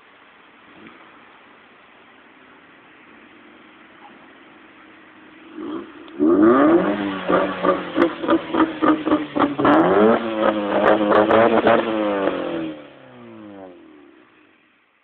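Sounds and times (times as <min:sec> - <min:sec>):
car exhaust revving: 0:04.6 - 0:14.6.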